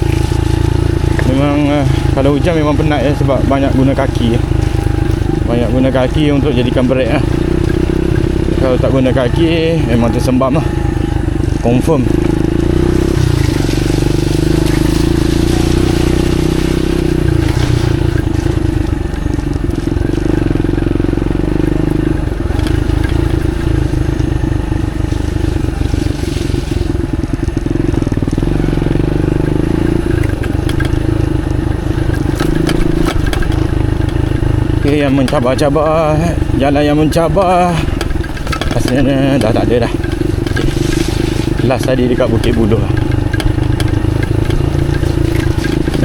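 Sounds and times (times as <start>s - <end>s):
motorcycle engine running slowly: 0.0s - 46.0s
clicks and knocks from bike: 30.1s - 35.5s, 37.8s - 41.6s, 42.4s - 46.0s.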